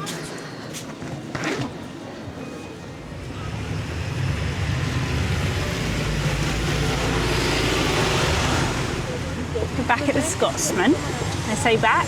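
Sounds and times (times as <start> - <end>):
passing vehicles rumbling: 2.8 - 12.0.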